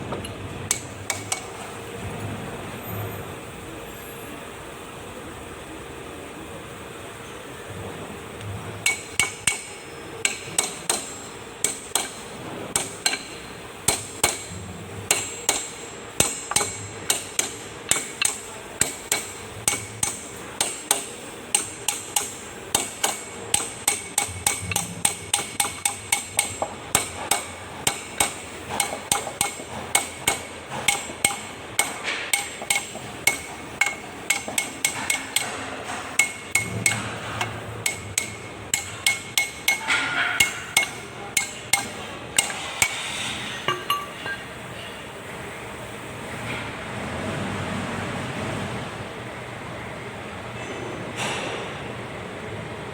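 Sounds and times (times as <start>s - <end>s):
hammer striking metal: 0.1s - 1.6s, 8.8s - 44.5s.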